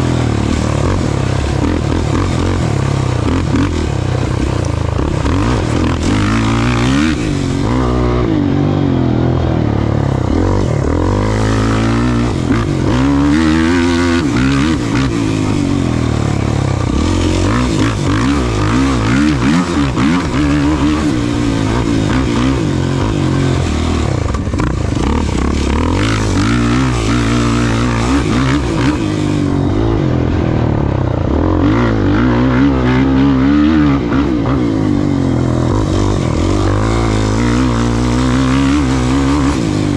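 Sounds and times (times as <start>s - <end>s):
engine revving hard: 0.0s - 39.9s.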